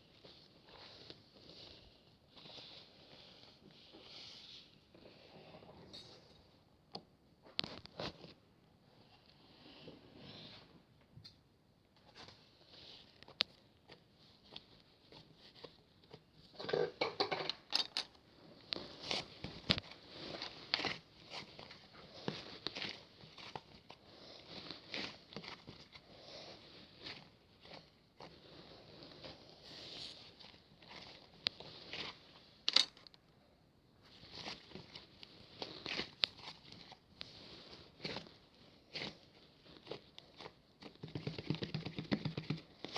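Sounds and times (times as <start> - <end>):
crinkling and crackling: 7.0 - 9.4, 11.0 - 42.9
objects being handled: 11.9 - 33.3, 34.0 - 42.9.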